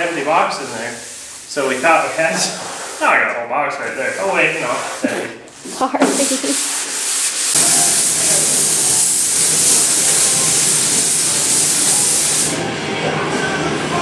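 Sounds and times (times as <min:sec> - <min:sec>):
spray gun hissing: 0:06.1 - 0:12.6.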